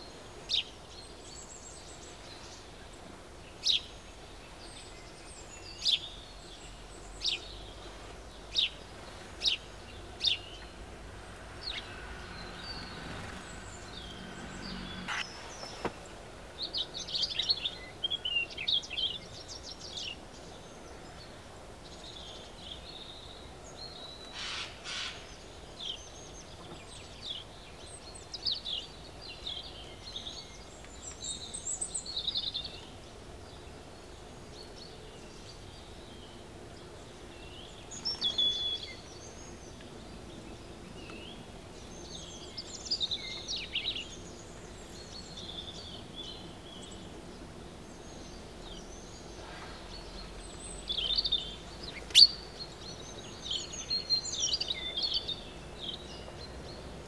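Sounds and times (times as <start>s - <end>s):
faint background hiss: 0.0s - 57.0s
small birds chirping and trilling: 0.0s - 57.0s.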